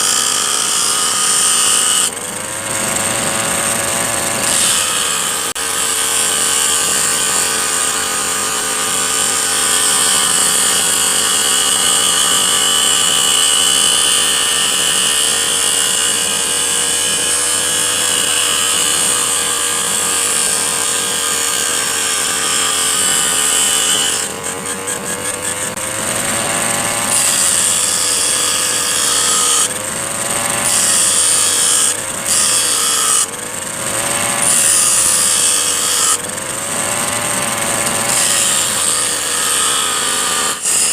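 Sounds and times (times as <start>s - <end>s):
abrasive disc grinding steel: 0.0s - 40.9s
brush cutter engine whine: 2.1s - 4.5s, 6.4s - 28.8s.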